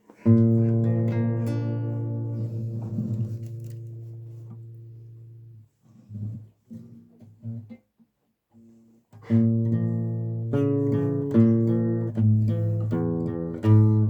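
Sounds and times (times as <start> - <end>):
guitar chords strummed: 0.2 - 5.0
plucked guitar notes: 0.2 - 5.5, 9.2 - 14.0.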